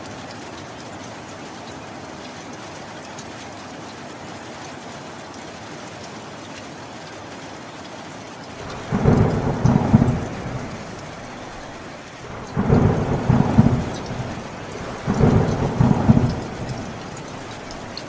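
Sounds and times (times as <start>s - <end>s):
heavy rain: 0.0s - 18.0s
thunder crack and rumble: 8.6s - 18.0s.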